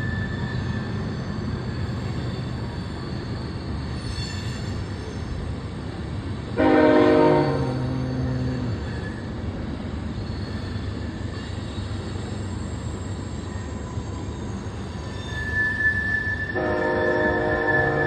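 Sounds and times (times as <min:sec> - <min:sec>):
thin high squeal: 0:00.0 - 0:05.4, 0:07.3 - 0:09.4, 0:10.2 - 0:18.0.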